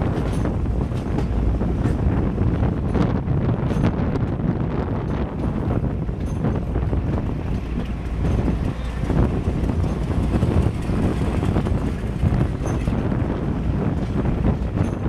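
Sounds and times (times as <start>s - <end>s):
train rumbling along track: 0.0s - 15.0s
wind buffeting microphone: 0.0s - 15.0s.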